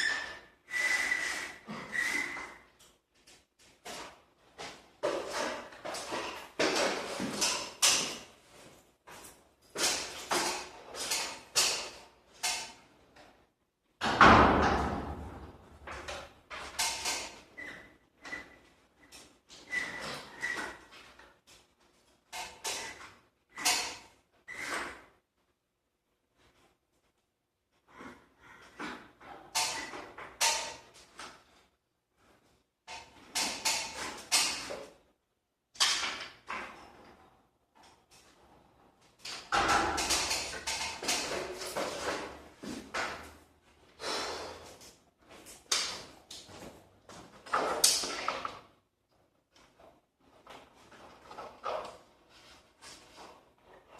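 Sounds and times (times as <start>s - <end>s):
clattering knocks and scrapes: 1.1s - 13.3s, 35.8s - 43.9s
garage door scraping and rattling: 38.1s - 43.4s.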